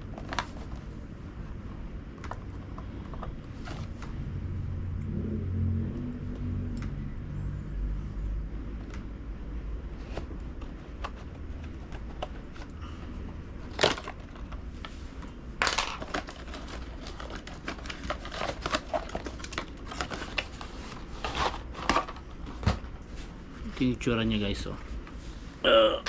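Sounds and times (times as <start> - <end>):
packaging crinkling and rustling: 0.0 - 1.2, 9.9 - 24.0.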